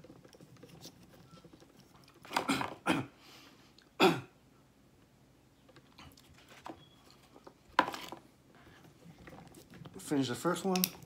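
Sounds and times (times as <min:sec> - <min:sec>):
man chewing: 0:05.8 - 0:07.5.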